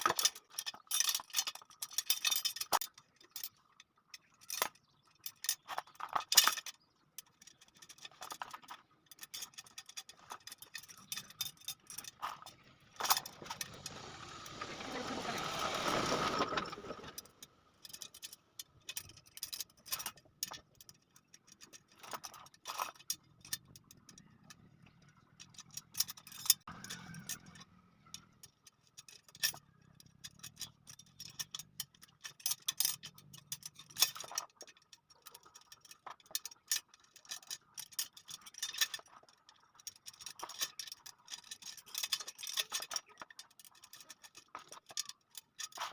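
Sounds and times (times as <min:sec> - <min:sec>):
metal spokes clicking and clinking: 0:00.0 - 0:45.9
rushing scraping noise: 0:13.1 - 0:17.4.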